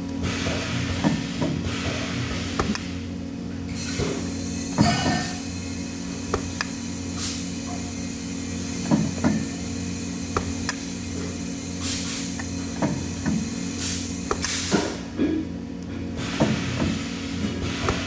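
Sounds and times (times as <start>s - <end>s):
low machine hum: 0.0s - 18.0s
short bursts of hissing: 11.8s - 12.4s, 13.7s - 14.9s.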